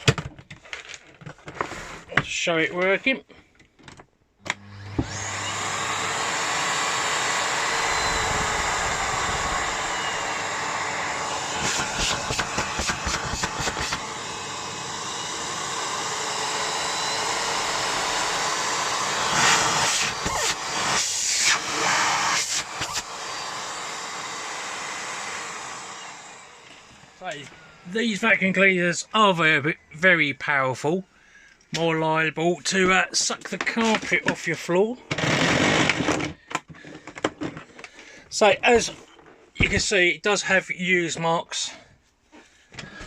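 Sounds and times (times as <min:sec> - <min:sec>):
vacuum cleaner running: 0:04.5 - 0:28.2.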